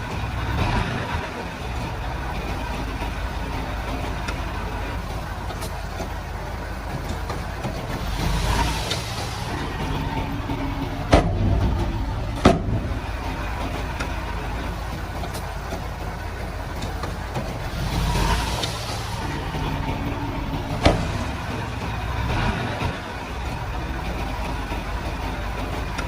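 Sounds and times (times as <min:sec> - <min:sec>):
bulldozer diesel engine running: 0:00.0 - 0:26.0
sharp knocks: 0:11.1 - 0:13.0.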